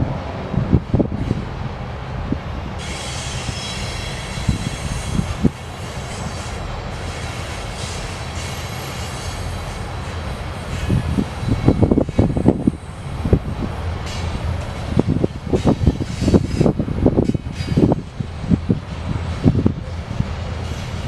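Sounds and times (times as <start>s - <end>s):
train cars rumbling on rails: 0.0s - 21.0s
metallic wheel squeal: 2.8s - 9.8s.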